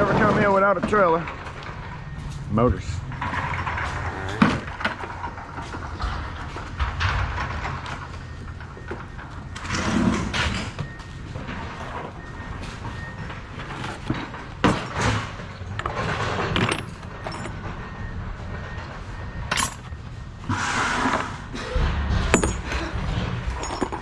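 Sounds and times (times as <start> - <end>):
metal scraping rattle: 0.0 - 24.0
scrap metal knocks and clanks: 0.0 - 24.0.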